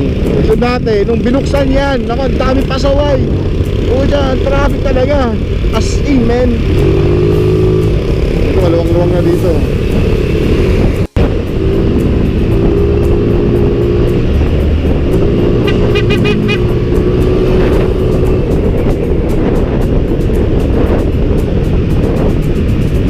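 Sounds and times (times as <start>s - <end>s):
background music: 0.0s - 23.0s
motorcycle engine: 0.0s - 23.0s
wind noise: 0.0s - 23.0s.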